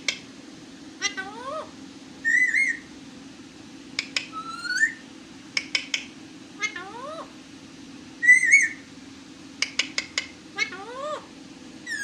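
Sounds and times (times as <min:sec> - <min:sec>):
parrot clicks: 0:00.0 - 0:00.2, 0:03.9 - 0:04.4, 0:05.5 - 0:06.1, 0:09.6 - 0:10.4
parrot whistling: 0:02.2 - 0:02.9, 0:04.3 - 0:05.0, 0:08.2 - 0:08.8.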